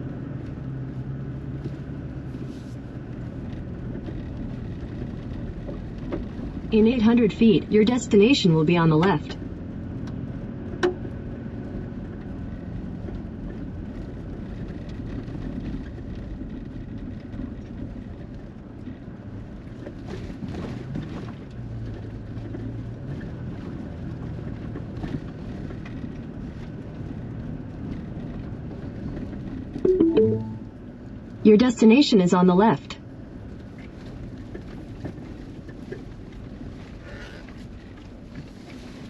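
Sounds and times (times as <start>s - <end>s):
engine and tyre drone: 0.0s - 29.8s.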